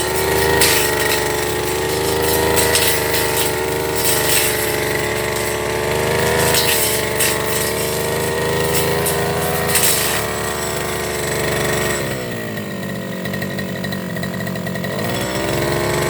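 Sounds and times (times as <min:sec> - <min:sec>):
cutting head swishing through grass: 0:00.0 - 0:12.0
brush cutter engine running: 0:00.0 - 0:16.0.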